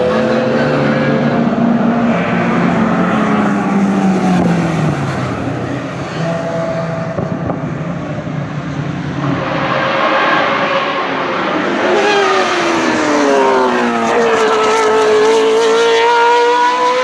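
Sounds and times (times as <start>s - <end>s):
racing car engine passing: 0.0s - 17.0s.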